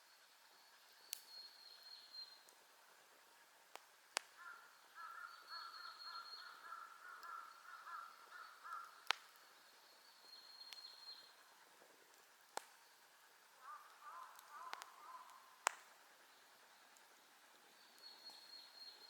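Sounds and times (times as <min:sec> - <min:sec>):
campfire popping: 0:01.0 - 0:01.4, 0:02.3 - 0:19.0
crow calling: 0:04.3 - 0:09.5, 0:13.6 - 0:15.8.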